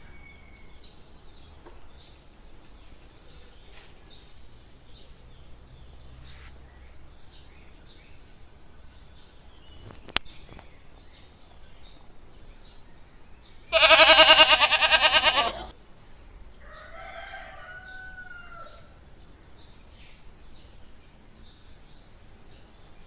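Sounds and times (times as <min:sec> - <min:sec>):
farm animal calling: 0:13.7 - 0:15.7.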